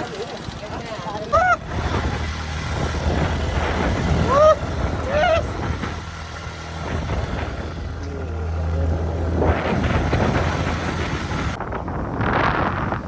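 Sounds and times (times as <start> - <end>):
vehicle engine running: 0.0 - 13.0
short gliding pitched sounds: 1.2 - 11.6.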